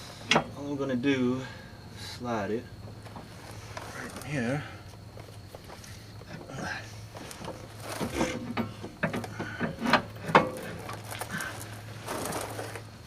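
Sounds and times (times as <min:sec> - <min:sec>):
metal clicks and knocks: 0:07.4 - 0:11.0.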